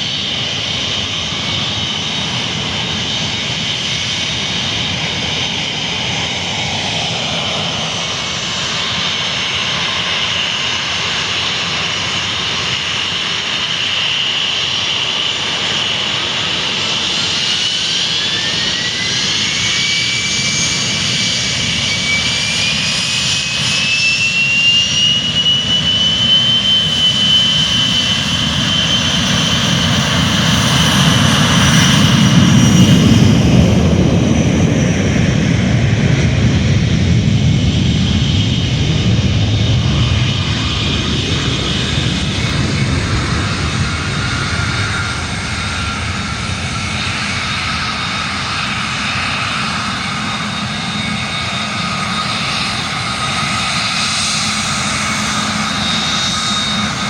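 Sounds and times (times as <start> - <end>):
jet engines spooling up: 0.0 - 57.0
low rumble: 32.9 - 47.1.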